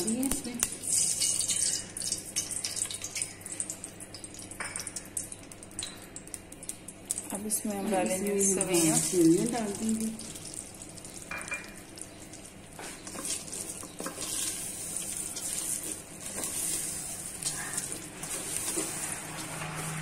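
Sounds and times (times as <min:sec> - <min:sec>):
vermicelli sizzling in a pot: 0:00.0 - 0:20.0
spoon scraping against a pot: 0:12.8 - 0:20.0.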